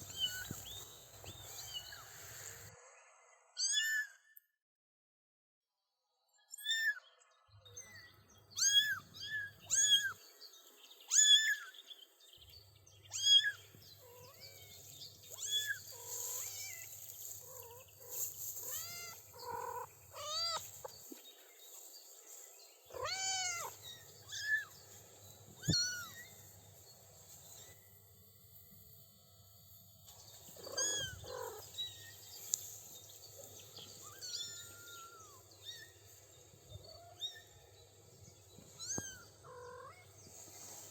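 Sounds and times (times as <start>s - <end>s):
kittens meowing: 0.0s - 0.6s, 8.6s - 10.2s, 13.1s - 21.0s, 22.9s - 24.8s, 25.6s - 26.4s, 30.5s - 32.2s, 33.9s - 35.9s, 38.7s - 40.1s.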